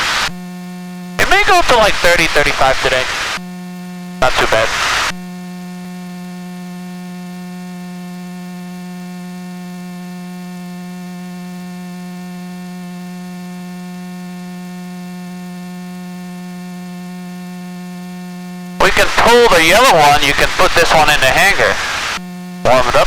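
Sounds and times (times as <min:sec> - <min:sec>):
steady electrical hum: 0:00.0 - 0:05.8, 0:17.6 - 0:23.0.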